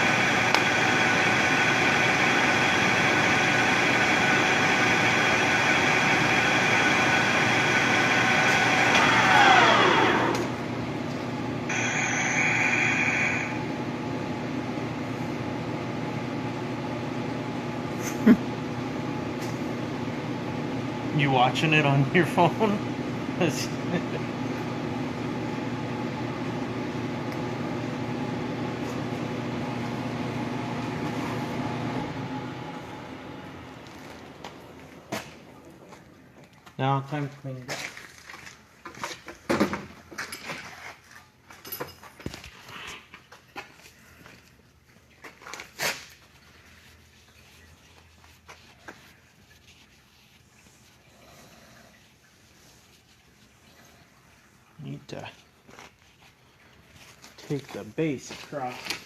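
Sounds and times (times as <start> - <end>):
machine tool motor winding down: 0.0 - 10.7, 11.7 - 13.7
machine motor whine: 0.0 - 15.5, 16.2 - 36.7
higher steady whine: 0.0 - 37.4.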